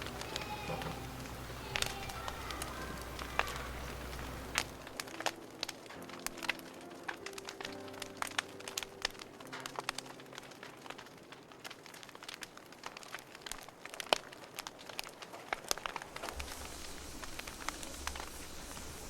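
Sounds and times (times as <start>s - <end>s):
music track: 0.0s - 12.0s
campfire crackling and popping: 0.0s - 19.0s.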